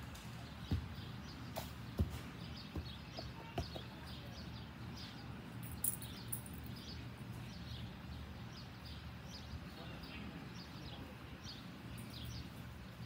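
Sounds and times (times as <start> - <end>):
low outdoor hum: 0.0 - 13.0
bird chirping: 0.2 - 13.0
dull thumps: 0.6 - 3.9.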